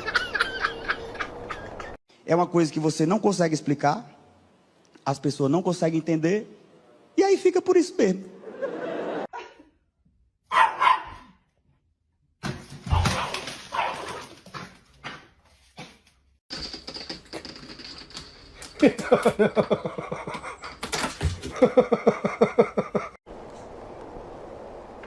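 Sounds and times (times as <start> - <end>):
dog yelping: 10.5 - 11.3.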